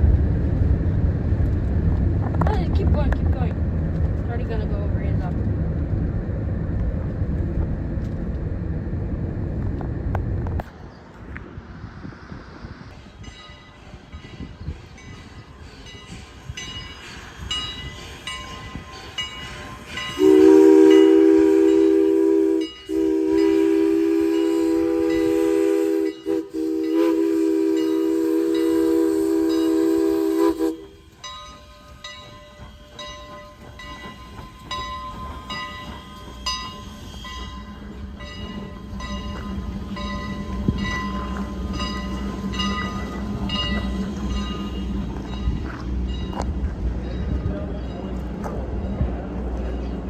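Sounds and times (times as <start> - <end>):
train wheels clicking on rail joints: 0.0 - 8.5, 12.9 - 50.0
low rumble: 0.0 - 13.0
locomotive horn chime: 19.9 - 46.4.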